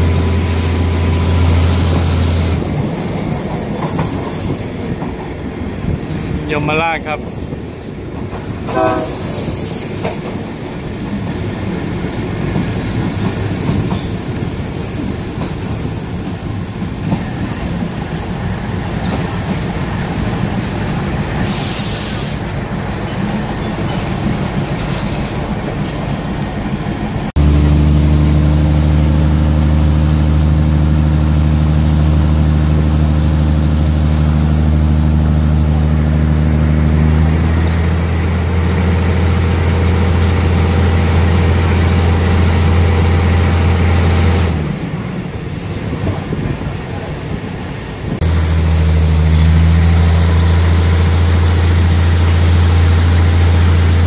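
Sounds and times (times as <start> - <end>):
train running on rails: 0.0 - 54.0
train wheel squeals: 8.7 - 27.3
diesel engine drone: 27.3 - 45.4, 48.1 - 54.0.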